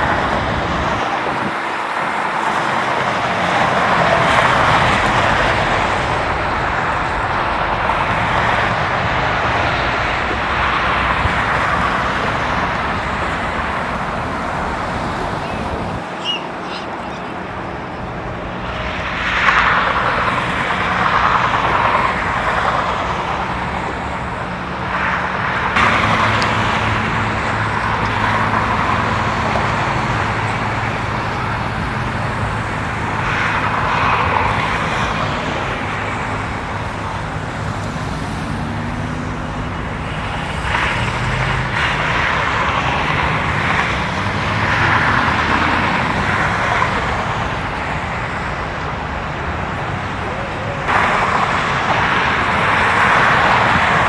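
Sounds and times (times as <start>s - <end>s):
engine hum: 0.0s - 54.0s
vehicles passing: 0.0s - 54.0s
engine revving: 18.7s - 49.4s.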